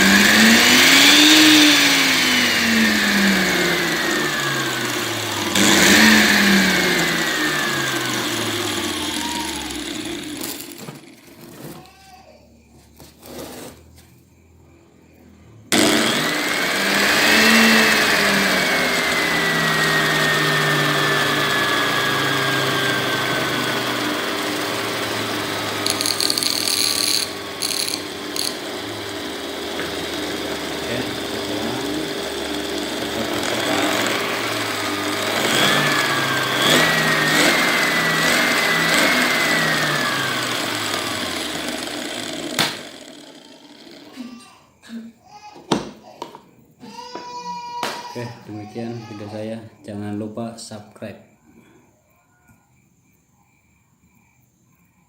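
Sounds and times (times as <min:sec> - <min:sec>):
angle grinder motor whine: 0:00.0 - 0:11.8, 0:15.7 - 0:44.5.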